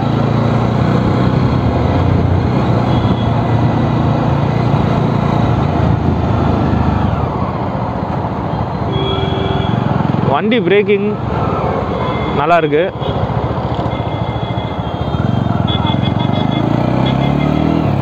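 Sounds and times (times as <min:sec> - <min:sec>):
motorcycle engine running: 0:13.0 - 0:18.0.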